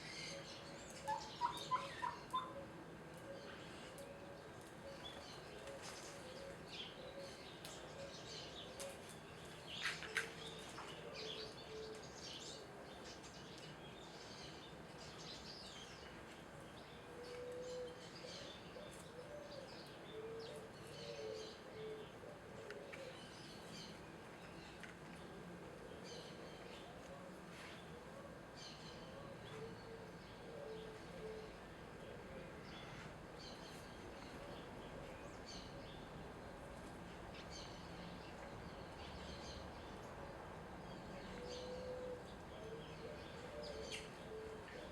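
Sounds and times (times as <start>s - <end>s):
small birds chirping: 0.0s - 2.5s.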